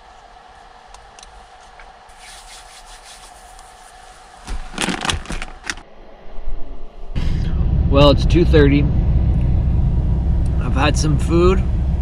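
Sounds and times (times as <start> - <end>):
faint steady hum: 2.9 - 12.0.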